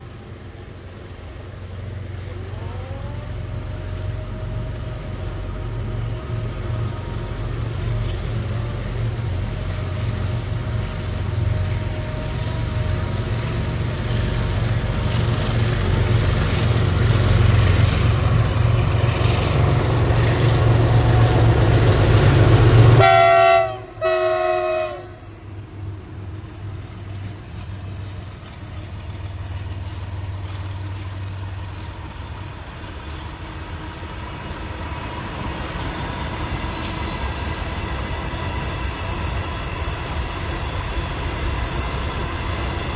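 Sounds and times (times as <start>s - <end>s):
freight train rumble: 0.0s - 42.9s
locomotive horn blasts: 22.9s - 25.3s.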